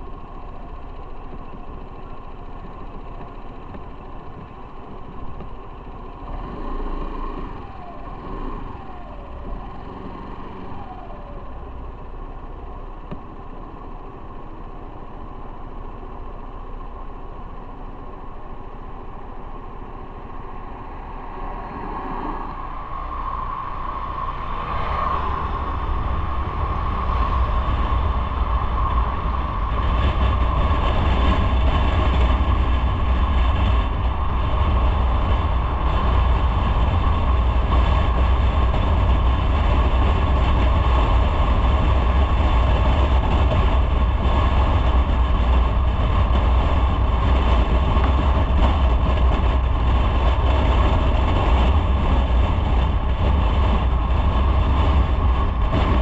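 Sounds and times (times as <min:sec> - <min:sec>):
motorcycle engine and road noise: 0:00.0 - 0:56.0
wind rumble on microphone: 0:20.1 - 0:56.0.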